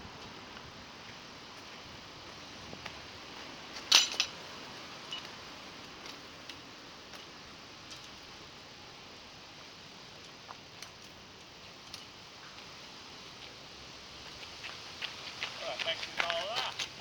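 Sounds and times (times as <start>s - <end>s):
faint hiss: 0.0s - 17.0s
metal clinking: 3.8s - 4.4s, 5.0s - 5.4s.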